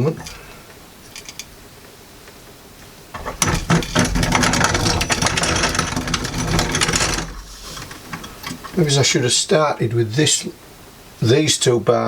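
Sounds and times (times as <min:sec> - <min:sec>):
grain mill rattling: 0:00.0 - 0:01.6, 0:03.1 - 0:09.0.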